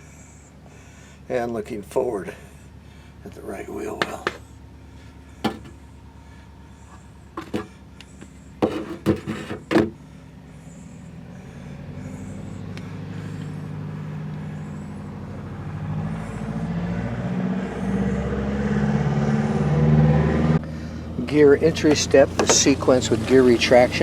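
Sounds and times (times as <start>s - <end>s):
motor humming: 4.1s - 18.4s, 20.7s - 24.0s.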